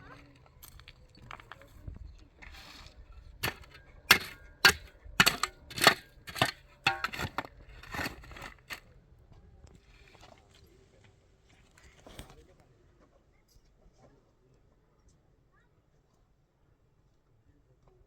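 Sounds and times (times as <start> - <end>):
tool scraping masonry: 0.0 - 8.8.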